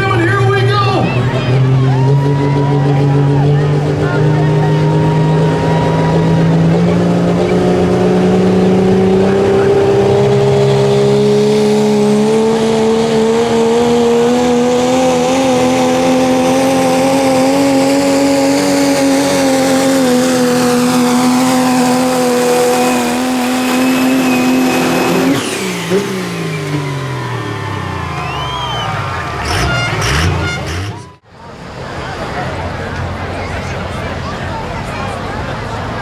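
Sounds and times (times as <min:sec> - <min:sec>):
engine at full revs under load: 0:00.0 - 0:36.0.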